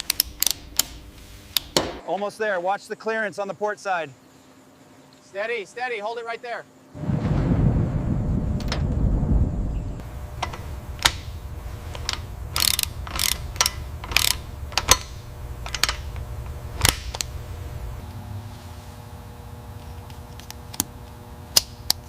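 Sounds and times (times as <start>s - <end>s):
mechanical clicks on metal parts: 0.0s - 1.8s, 10.0s - 17.7s
faint low hum: 6.8s - 22.0s
low rumble: 7.0s - 20.3s.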